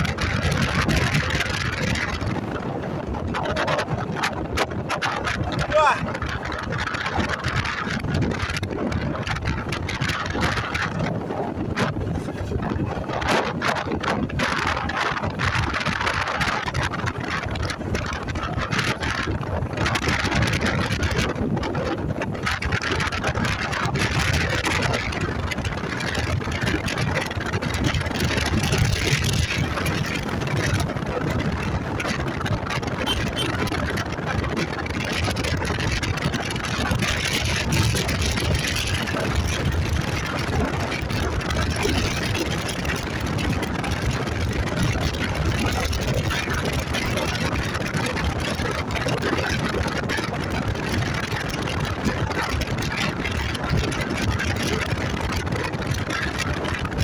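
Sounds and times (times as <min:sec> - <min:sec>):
wind rush on microphone: 0:00.0 - 0:57.0
motorcycle engine running: 0:22.0 - 0:57.0.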